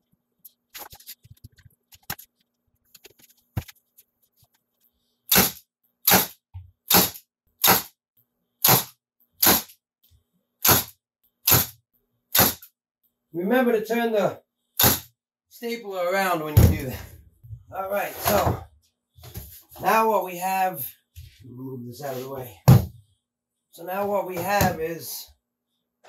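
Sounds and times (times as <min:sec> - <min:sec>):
stapler firing into wood: 0:05.3 - 0:07.9, 0:08.6 - 0:09.8, 0:10.6 - 0:12.7, 0:14.8 - 0:15.1.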